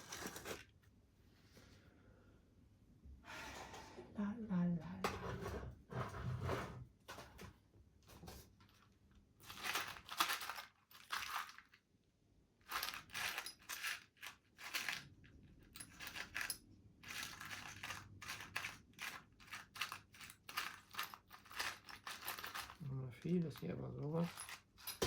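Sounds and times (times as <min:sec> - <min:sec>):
small metal parts rattling: 0:09.4 - 0:11.8, 0:12.6 - 0:25.0.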